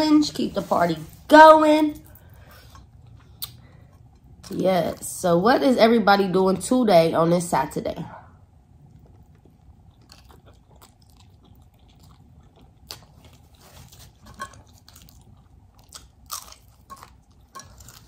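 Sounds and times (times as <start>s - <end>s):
person chewing crunchy food: 8.7s - 18.0s.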